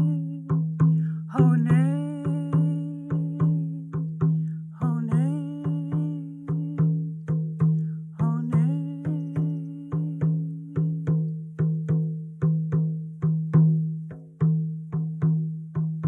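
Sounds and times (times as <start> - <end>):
woman singing: 0.0 - 7.1, 8.2 - 11.2
steady low drumbeat: 0.0 - 16.0.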